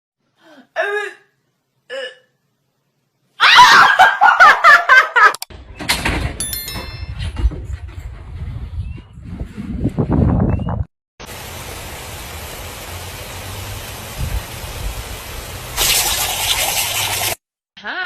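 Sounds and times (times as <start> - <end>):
loud laughter: 3.4 - 5.4.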